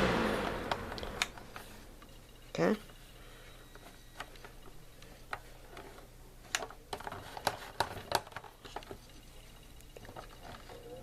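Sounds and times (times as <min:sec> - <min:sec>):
faint low hum: 0:00.0 - 0:11.0
plastic fan clicks and knocks: 0:06.5 - 0:09.0.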